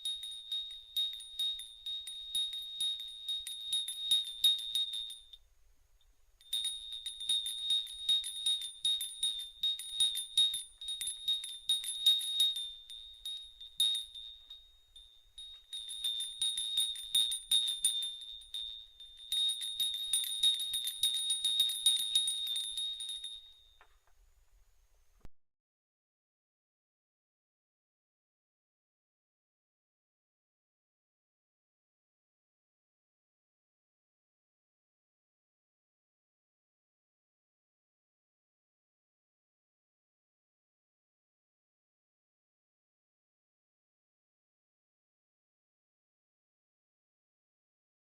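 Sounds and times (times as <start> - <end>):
small metal bells tinkling: 0.0 - 5.5, 6.4 - 24.1.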